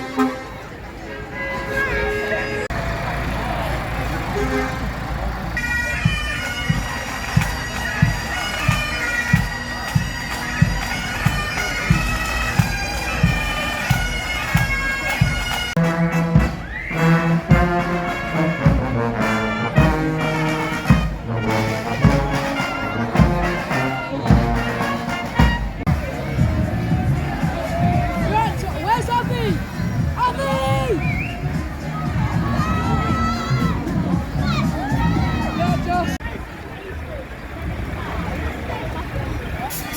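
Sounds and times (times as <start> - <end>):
bagpipes playing a tune: 0.0 - 26.9
regular drum beat: 5.9 - 36.2.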